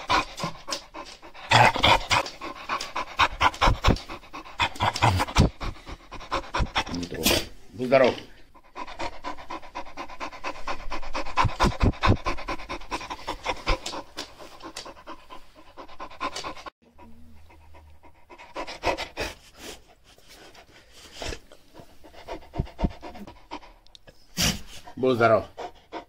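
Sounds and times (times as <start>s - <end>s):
dog panting: 0.0s - 26.0s.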